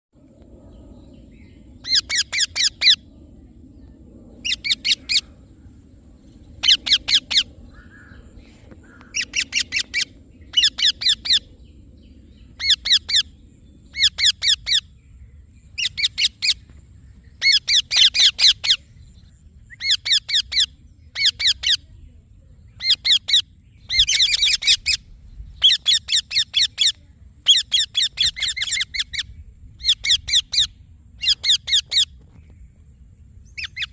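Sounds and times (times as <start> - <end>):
parakeet calling: 1.8 - 3.0, 4.4 - 5.3, 6.6 - 11.6, 12.5 - 14.9, 15.8 - 16.6, 17.4 - 18.9, 19.7 - 21.8, 22.8 - 32.1, 33.5 - 33.9.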